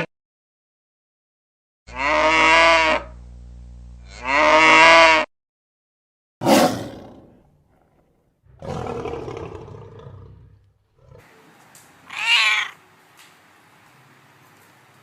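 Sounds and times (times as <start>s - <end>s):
big cat roaring: 6.4s - 11.4s.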